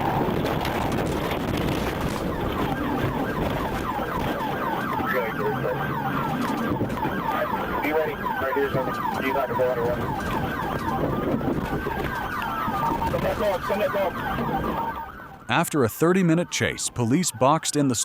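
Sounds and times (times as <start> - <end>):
siren fast yelp: 0.0 - 18.0
siren rising and falling wail: 0.0 - 18.0.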